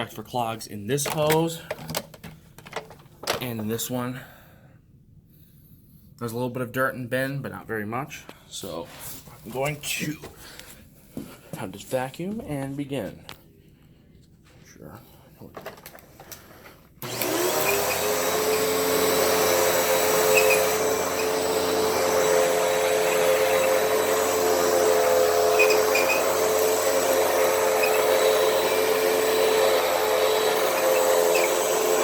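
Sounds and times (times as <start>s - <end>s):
vacuum cleaner motor whine: 17.0s - 32.0s.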